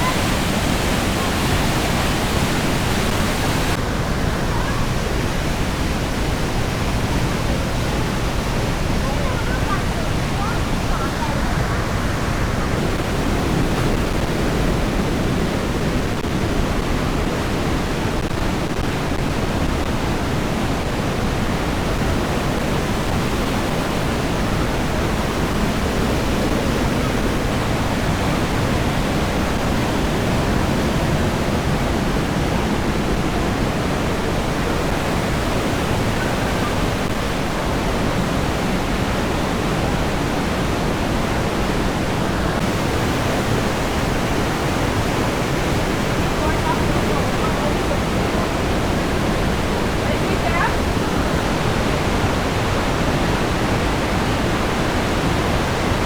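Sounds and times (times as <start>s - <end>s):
waterfall roaring in gorge: 0.0s - 56.0s.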